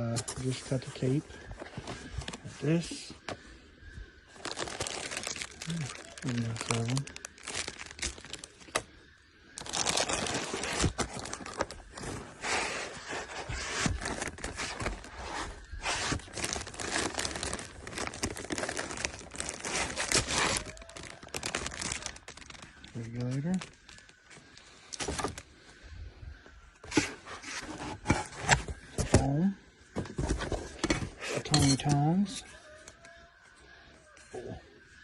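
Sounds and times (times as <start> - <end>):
cardboard and plastic crinkling: 0.2 - 3.4, 4.3 - 9.0, 9.6 - 25.5, 26.8 - 29.3, 29.9 - 32.0.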